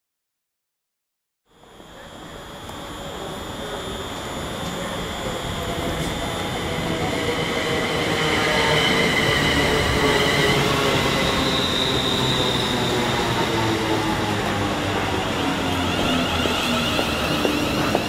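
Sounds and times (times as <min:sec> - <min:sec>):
electric train braking: 0:01.6 - 0:18.0.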